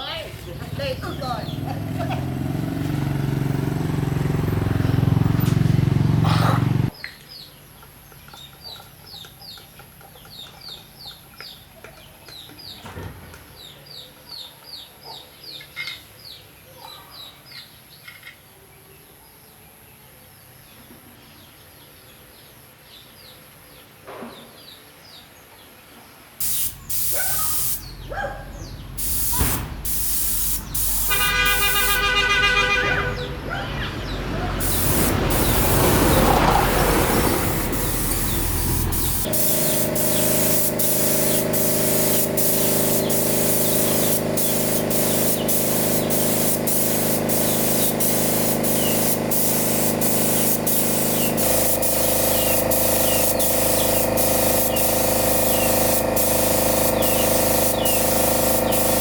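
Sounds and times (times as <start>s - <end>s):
compressed air hissing: 26.4s - 33.3s, 34.0s - 59.0s.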